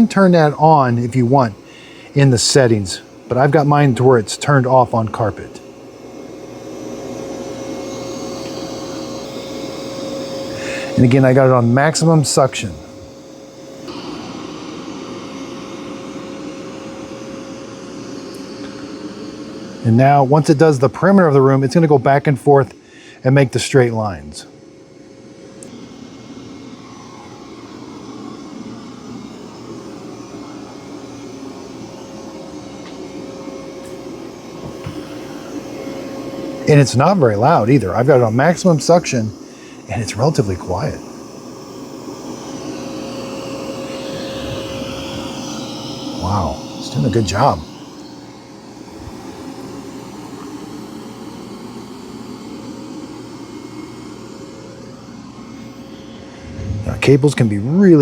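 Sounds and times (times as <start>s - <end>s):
faint constant whine: 0.0s - 58.0s
robot vacuum fan drone: 0.0s - 58.0s.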